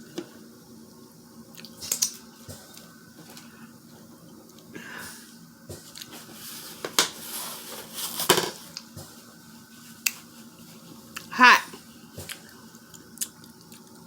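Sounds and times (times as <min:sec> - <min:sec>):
rustling: 0:06.0 - 0:08.8.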